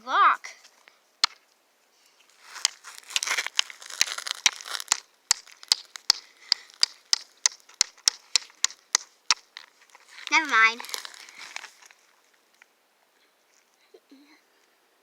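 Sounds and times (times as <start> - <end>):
material crackling and tearing: 2.4 - 6.0, 9.9 - 11.9
sharp little snaps: 2.5 - 11.7.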